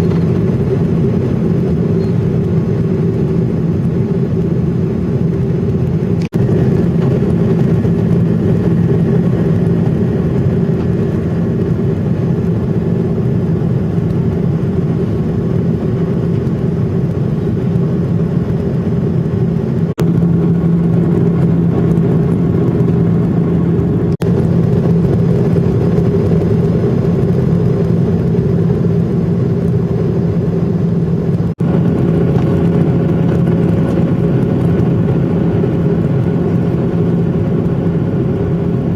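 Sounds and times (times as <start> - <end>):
jet engines rumbling in cabin: 0.0 - 38.9.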